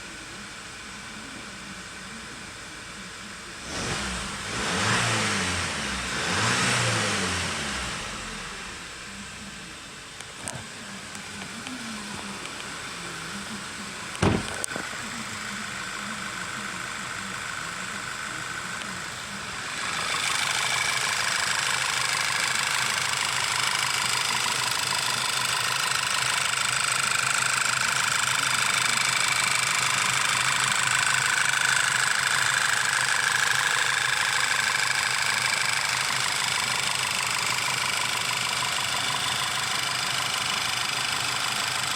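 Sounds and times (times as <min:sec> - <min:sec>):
car engine idling: 0:00.0 - 0:41.9
sharp engine knock: 0:14.2 - 0:14.6.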